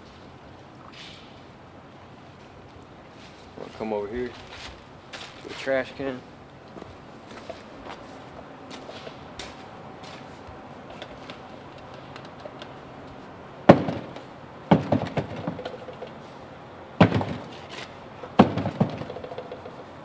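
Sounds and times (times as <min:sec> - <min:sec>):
knocks on a trash can: 0:13.7 - 0:15.6, 0:17.0 - 0:17.5, 0:18.4 - 0:19.3.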